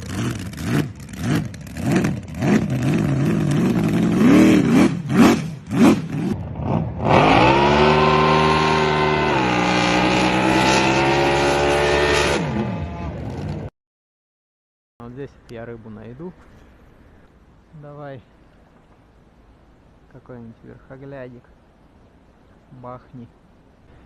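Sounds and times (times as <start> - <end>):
engine revving: 0.0 - 13.7.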